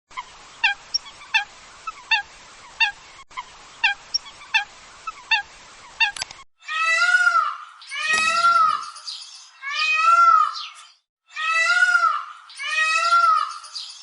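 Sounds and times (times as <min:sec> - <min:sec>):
steady hiss: 0:00.2 - 0:06.4
bird calling: 0:07.0 - 0:10.9.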